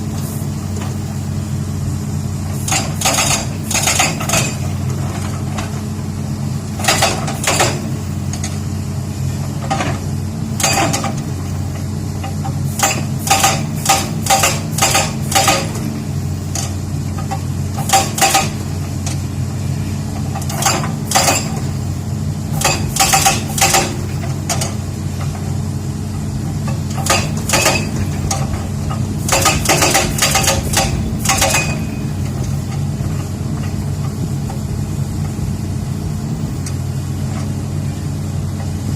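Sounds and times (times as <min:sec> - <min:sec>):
diesel engine running: 0:00.0 - 0:38.9
hydraulic rock breaker hammering: 0:02.4 - 0:05.9, 0:06.8 - 0:08.7, 0:09.5 - 0:19.3, 0:20.1 - 0:25.5, 0:26.1 - 0:35.4.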